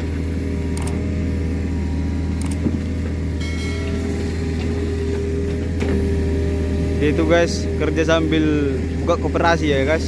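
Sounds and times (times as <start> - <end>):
diesel excavator engines running: 0.0 - 10.0
sharp clicks: 0.8 - 1.0, 2.4 - 2.6.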